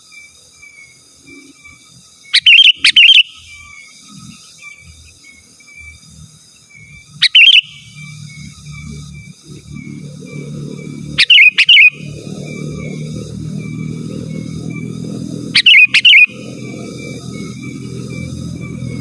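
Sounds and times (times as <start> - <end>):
bulbul calling: 2.3 - 5.2, 6.7 - 19.0.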